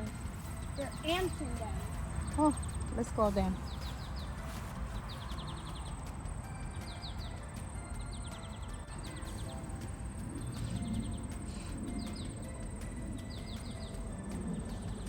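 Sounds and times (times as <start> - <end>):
bird chirping: 0.0 - 15.0
high insect trill: 0.0 - 15.0.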